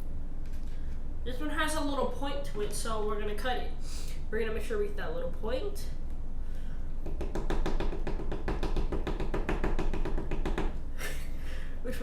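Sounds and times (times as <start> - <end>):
rapid even knocking: 7.0 - 10.8.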